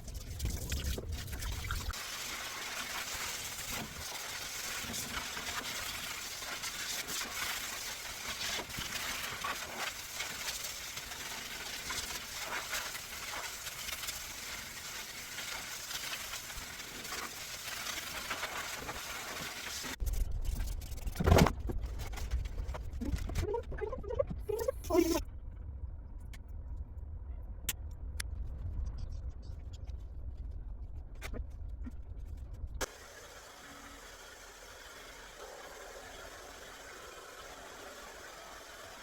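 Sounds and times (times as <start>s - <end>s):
water spraying on dog's coat: 0.3s - 20.0s
low rumble: 20.0s - 32.9s.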